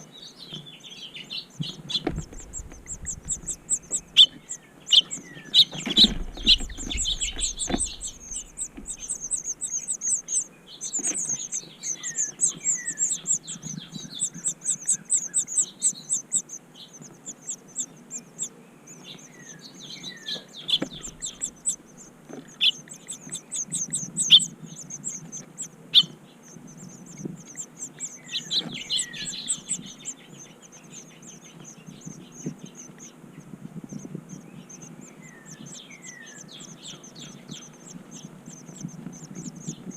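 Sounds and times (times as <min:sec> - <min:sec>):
songbirds chirping: 0:00.0 - 0:39.9
sharp knocks: 0:02.0 - 0:04.0, 0:05.8 - 0:09.1
low rumble: 0:02.1 - 0:05.0, 0:06.0 - 0:09.9.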